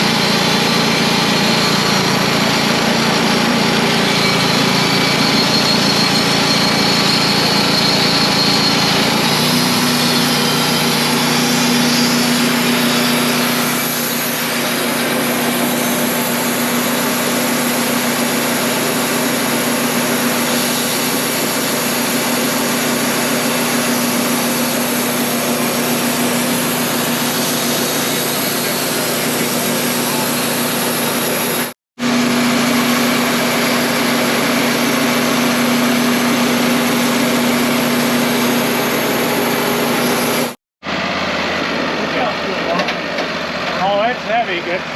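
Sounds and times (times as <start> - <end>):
sawmill engine running under load: 0.0 - 44.9.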